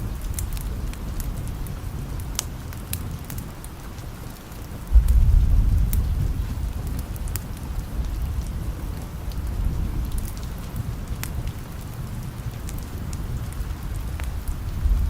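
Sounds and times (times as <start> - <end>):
steady rain: 0.0 - 15.0
distant thunder rumble: 4.8 - 15.0.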